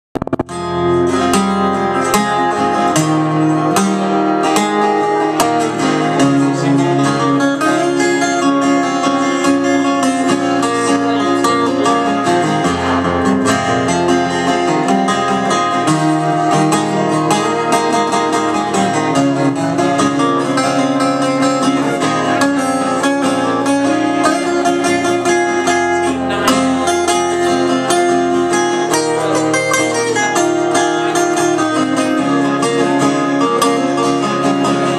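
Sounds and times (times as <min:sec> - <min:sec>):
acoustic guitar: 0:00.1 - 0:34.9
other plucked strings: 0:00.1 - 0:34.9.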